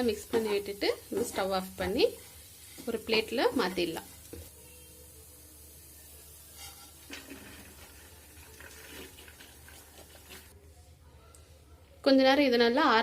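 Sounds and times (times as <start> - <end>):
spoon scraping a pan: 6.3 - 10.6.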